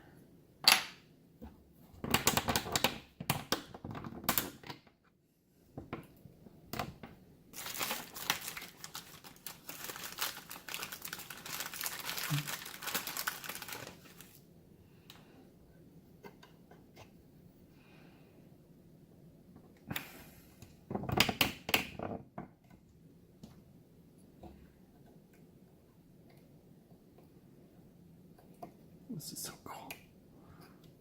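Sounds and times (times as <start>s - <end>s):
crinkling and crackling: 6.8s - 14.4s.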